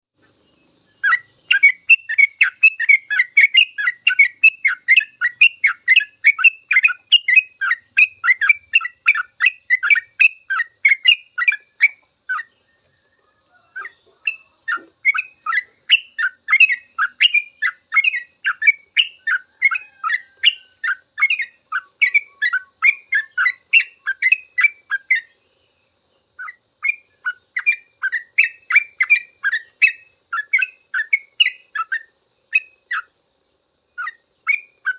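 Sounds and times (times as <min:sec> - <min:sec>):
bulbul singing chattering notes: 0:00.3 - 0:12.6.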